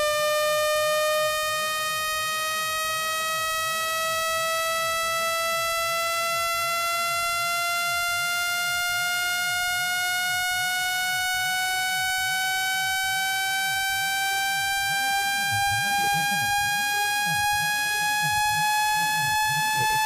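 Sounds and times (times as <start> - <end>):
buzzy electronic tone rising: 0.0 - 20.0.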